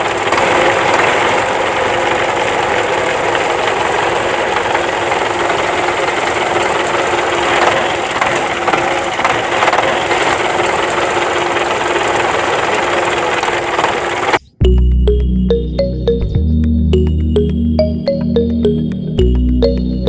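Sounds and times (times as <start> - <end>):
small water pump motor running: 0.0 - 14.4.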